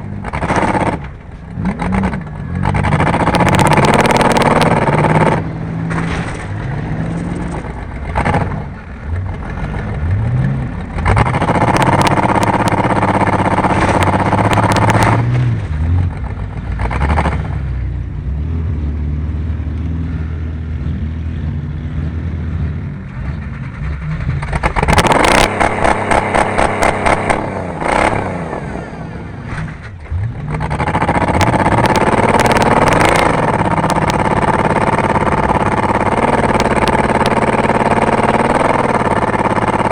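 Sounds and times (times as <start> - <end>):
race car engines revving: 0.0 - 39.9.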